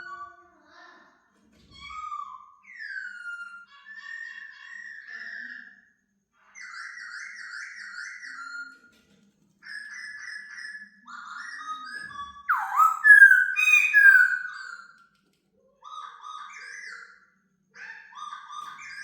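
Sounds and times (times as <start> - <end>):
bird singing whistled phrases: 12.5 - 14.9.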